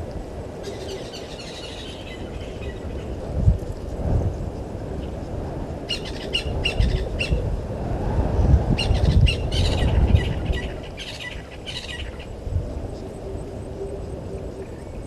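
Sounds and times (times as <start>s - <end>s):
birds chirping: 0.6s - 3.2s, 8.8s - 12.4s.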